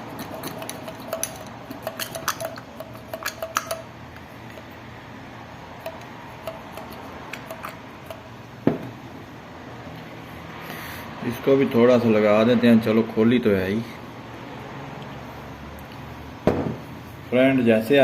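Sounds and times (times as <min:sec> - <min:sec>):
metallic clicks and clinks: 0:00.2 - 0:03.9
loud knock: 0:08.6 - 0:08.9, 0:16.4 - 0:16.8.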